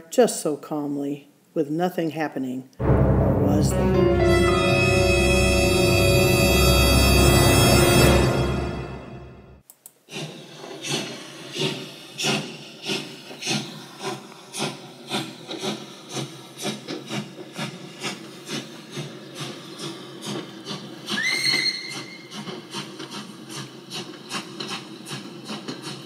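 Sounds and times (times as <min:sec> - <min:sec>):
train whistle: 0:02.8 - 0:09.6, 0:21.0 - 0:22.5
steam train chuffing: 0:02.8 - 0:26.0.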